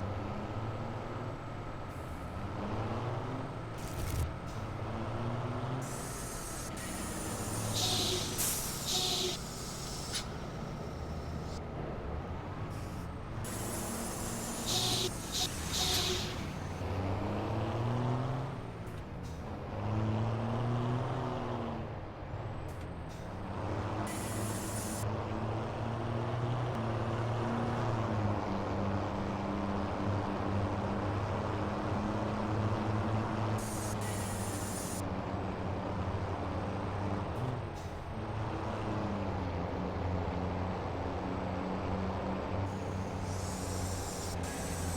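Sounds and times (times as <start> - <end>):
diesel truck engine revving: 0.0 - 22.5, 23.3 - 44.9
air brake hisses: 5.8 - 11.6, 12.7 - 16.9, 24.1 - 25.0, 33.6 - 35.0, 42.7 - 44.9.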